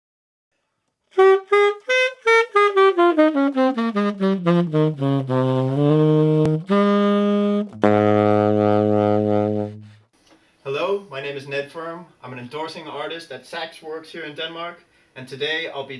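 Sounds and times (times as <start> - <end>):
solo tenor saxophone: 1.2 - 10.1.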